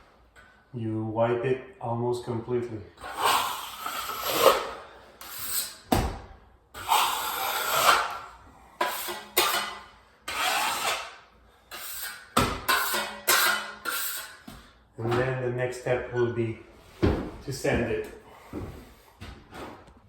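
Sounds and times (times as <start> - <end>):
trowel scraping compound on wall: 3.0 - 5.9, 6.8 - 15.4.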